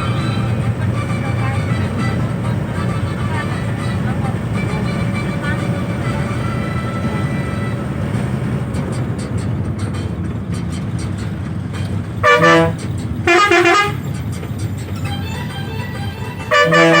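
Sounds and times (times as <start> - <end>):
bus engine and road noise: 0.0 - 17.0
vehicle horn blasts: 12.2 - 14.0, 16.4 - 17.0.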